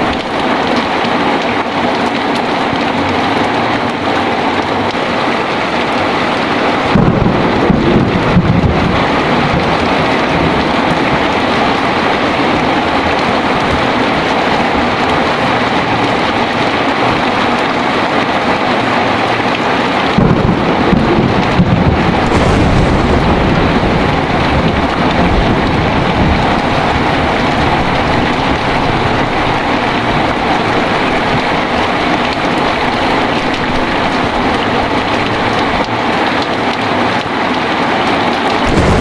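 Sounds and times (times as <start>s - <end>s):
heavy rain falling: 0.0s - 39.0s
thunder rumbling: 5.8s - 36.2s, 38.5s - 39.0s.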